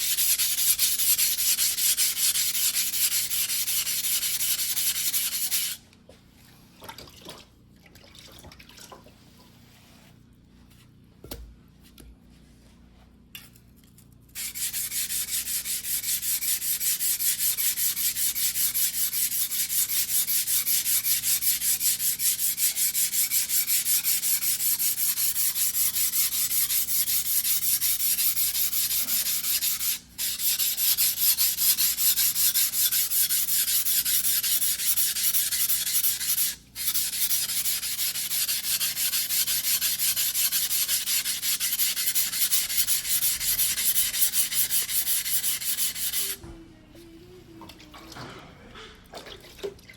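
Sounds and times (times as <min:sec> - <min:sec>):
knife scraping on whetstone: 0:21.1 - 0:46.4.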